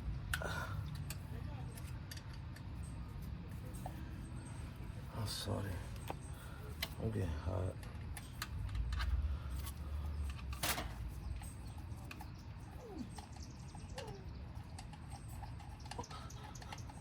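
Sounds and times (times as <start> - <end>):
tools clicking and knocking: 0.3 - 4.0.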